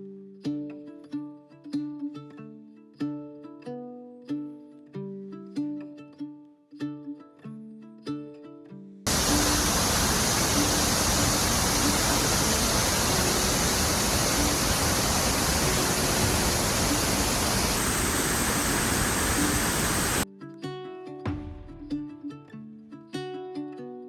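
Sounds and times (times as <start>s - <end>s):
waterfall rushing: 9.1s - 20.2s.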